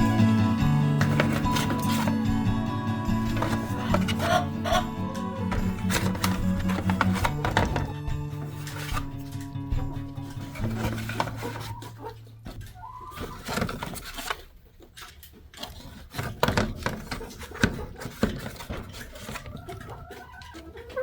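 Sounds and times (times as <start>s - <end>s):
hens calling: 0.0s - 8.0s, 9.6s - 13.6s, 18.8s - 21.0s
knocks and rustling in wooden boxes: 0.0s - 21.0s.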